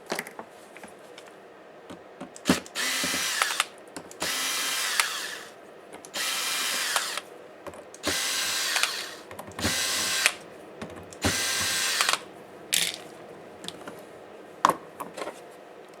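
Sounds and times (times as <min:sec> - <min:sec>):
sharp clicks: 0:02.4 - 0:05.4, 0:06.0 - 0:07.3, 0:07.9 - 0:10.4, 0:11.0 - 0:13.0
electric screwdriver running: 0:02.4 - 0:05.5, 0:06.1 - 0:07.3, 0:08.0 - 0:10.4, 0:11.2 - 0:12.3.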